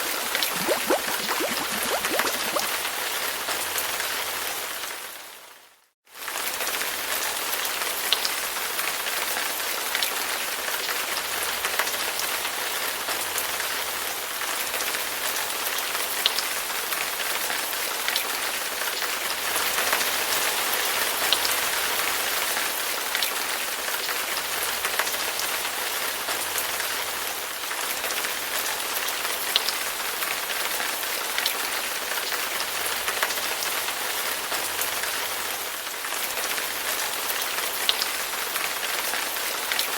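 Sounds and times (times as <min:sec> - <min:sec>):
water drops ticking on surface: 0:00.0 - 0:02.7.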